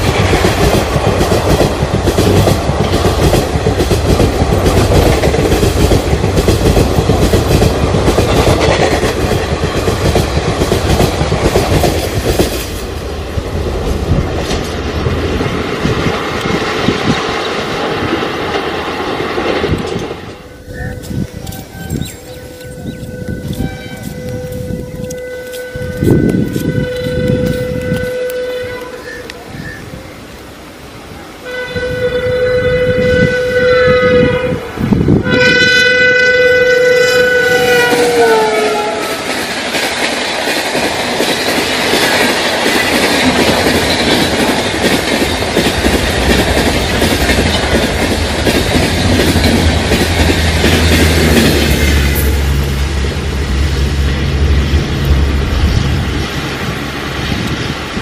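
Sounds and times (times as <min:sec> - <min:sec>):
approaching train rumble and hum: 0:00.0 - 0:58.0
train coaches rushing by: 0:00.0 - 0:58.0
train horn blasts: 0:20.4 - 0:29.2, 0:31.4 - 0:39.3.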